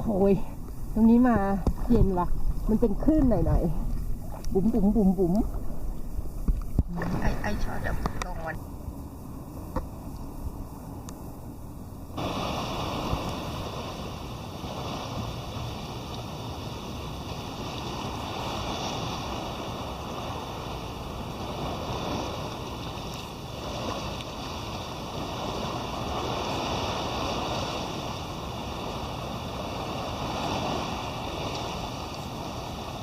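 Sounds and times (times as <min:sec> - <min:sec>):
small waves lapping: 0:00.0 - 0:08.6, 0:12.1 - 0:33.0
wind on microphone: 0:00.0 - 0:33.0.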